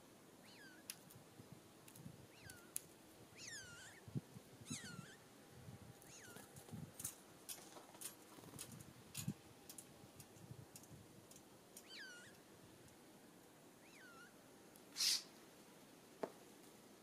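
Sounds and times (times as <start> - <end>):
songbird mewing calls: 3.4 - 4.1, 15.0 - 15.3.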